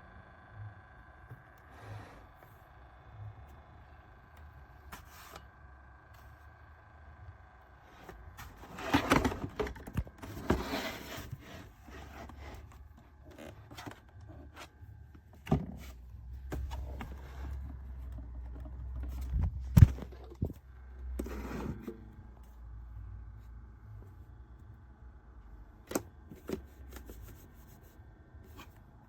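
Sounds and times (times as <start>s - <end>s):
low steady hum: 0.0s - 29.0s
objects knocking and scraping: 8.0s - 12.8s.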